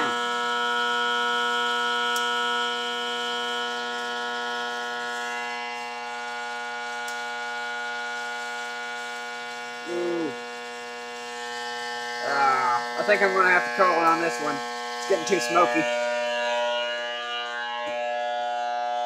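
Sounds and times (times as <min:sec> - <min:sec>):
transformer buzzing: 0:09.8 - 0:10.6.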